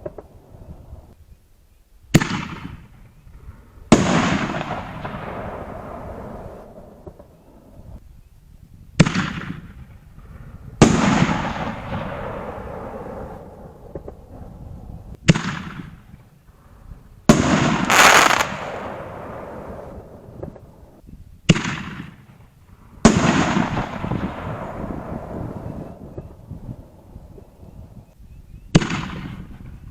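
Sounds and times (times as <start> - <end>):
firework shell break echoing: 17.5 - 20.4.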